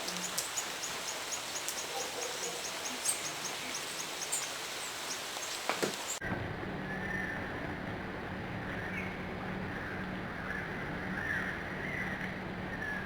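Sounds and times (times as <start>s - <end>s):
outdoor hiss: 0.0s - 6.2s.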